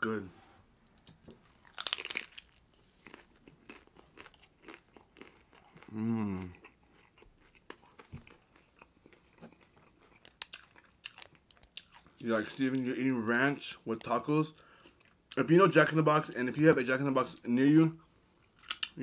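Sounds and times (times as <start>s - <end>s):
crunching taco shell: 1.6s - 5.8s.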